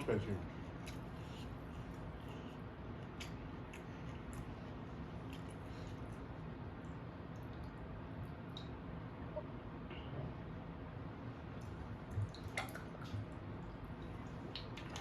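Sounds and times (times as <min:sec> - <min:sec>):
person chewing food: 0:00.5 - 0:07.8.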